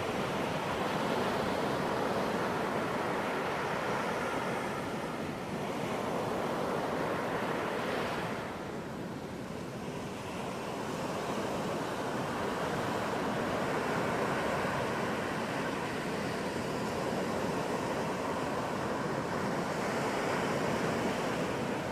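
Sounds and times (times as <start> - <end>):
ocean surf breaking: 9.6 - 21.9.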